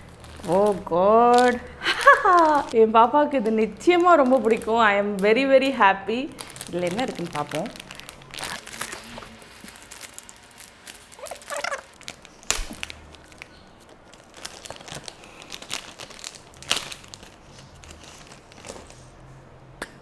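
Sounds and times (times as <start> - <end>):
packaging crinkling: 0.0 - 2.8, 3.6 - 19.2
packaging snaps: 0.0 - 2.8, 6.3 - 19.0.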